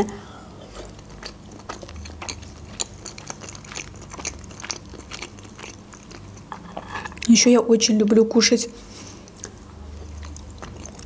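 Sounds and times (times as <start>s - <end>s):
person chewing soft food: 0.5s - 7.3s, 9.0s - 11.0s.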